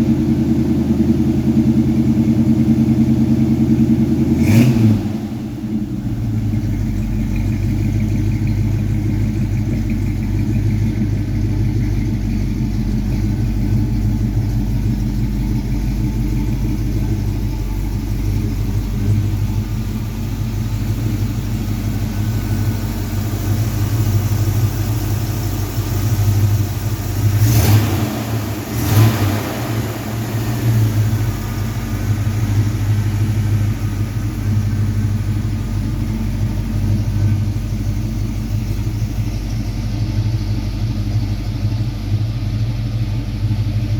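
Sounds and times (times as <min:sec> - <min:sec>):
pickup engine running: 0:00.0 - 0:43.9.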